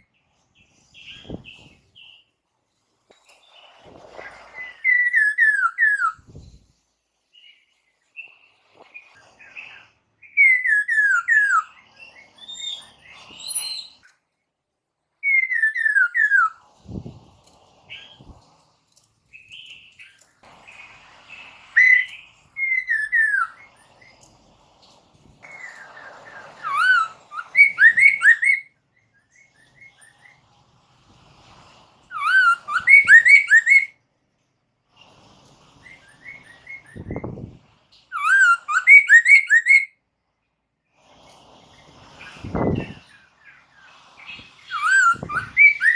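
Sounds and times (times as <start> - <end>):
laughingthrush whistled song: 4.2 - 6.5, 8.9 - 14.1, 15.2 - 17.1, 21.3 - 24.1, 25.4 - 30.4, 32.1 - 34.0, 35.8 - 37.5, 38.1 - 40.0, 44.2 - 45.9
bird chatter: 25.4 - 28.6, 43.5 - 45.9.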